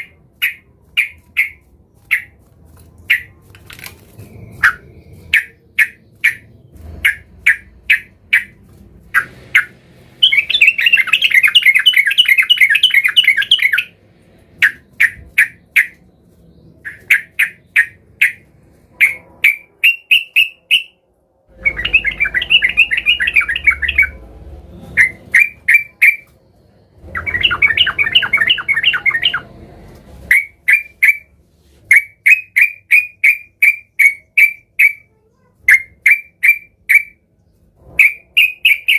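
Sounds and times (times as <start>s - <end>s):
bulbul harsh chattering: 4.2s - 16.0s.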